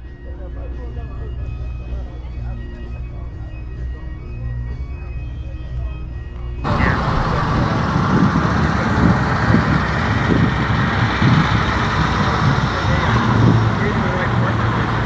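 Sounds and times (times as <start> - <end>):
music: 0.0 - 7.0
steady outdoor noise: 6.6 - 15.0
vehicle engine running: 6.6 - 15.0.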